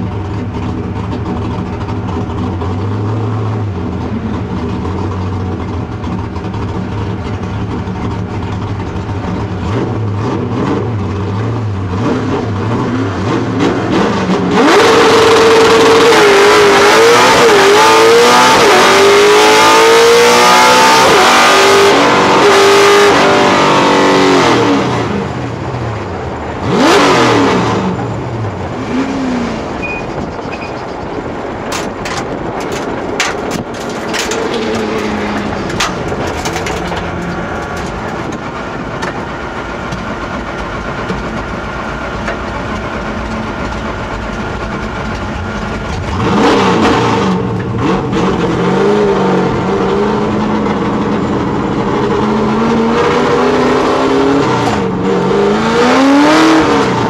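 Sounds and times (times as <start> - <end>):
clicks and rattles in cabin: 31.6 - 39.2.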